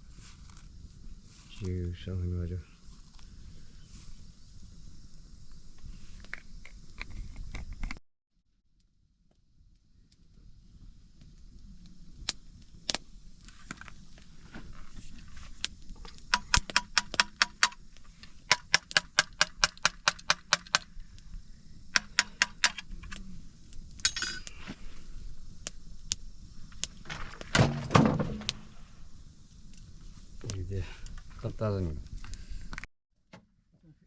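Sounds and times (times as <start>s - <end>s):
metal tapping on metal: 16.3s - 17.8s, 21.9s - 22.8s.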